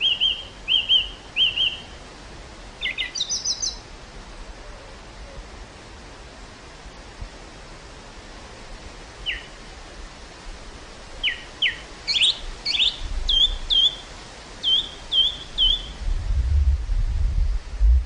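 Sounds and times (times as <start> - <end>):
bird chirping: 0.0 - 2.0, 2.8 - 3.8, 9.2 - 9.6, 11.2 - 16.0
wind hissing across field: 0.0 - 18.0
wind rumbling on microphone: 1.4 - 18.0.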